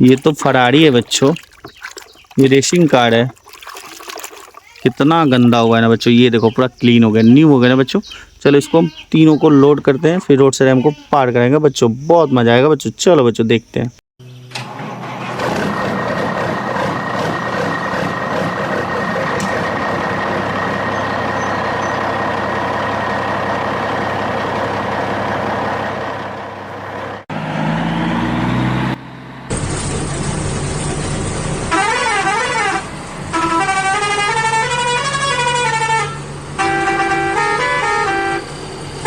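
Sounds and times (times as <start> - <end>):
truck engine running: 14.6 - 39.0
truck horn held: 31.7 - 38.6.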